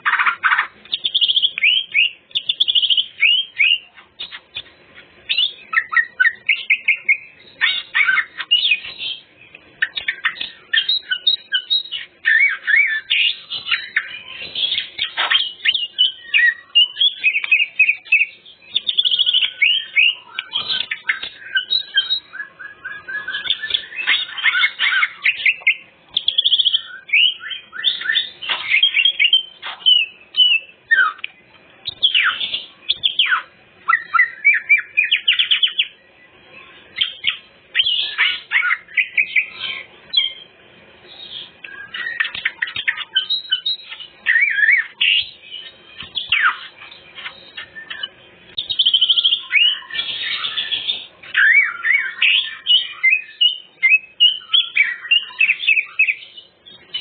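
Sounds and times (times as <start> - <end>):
bird singing chirps and trills: 0.0 - 57.0.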